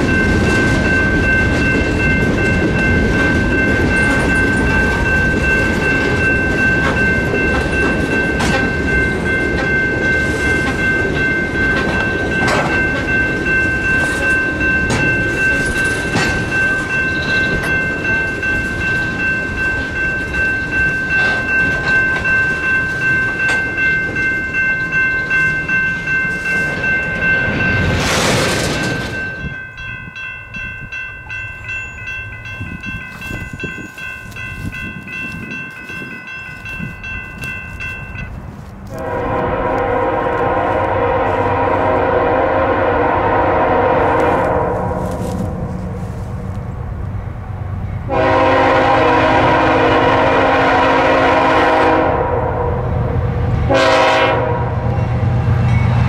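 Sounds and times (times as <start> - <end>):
high ringing tones: 0.0 - 39.1
freight train wheels clacking: 0.0 - 42.0.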